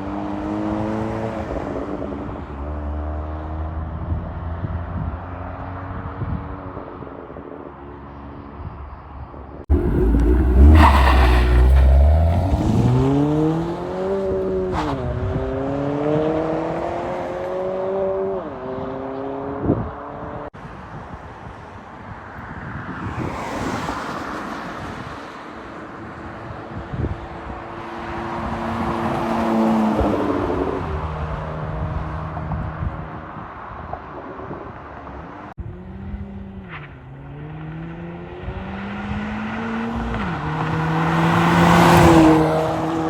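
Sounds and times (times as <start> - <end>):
car engine revving through gears: 9.7 - 18.2, 37.4 - 43.0.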